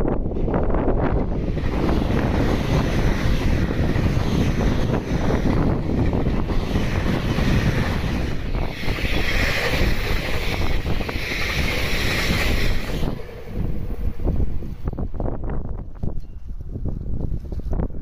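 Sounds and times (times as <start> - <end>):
train wheels rumbling on rails: 0.0 - 18.0
wind buffeting microphone: 0.0 - 18.0
train hiss: 1.3 - 15.3.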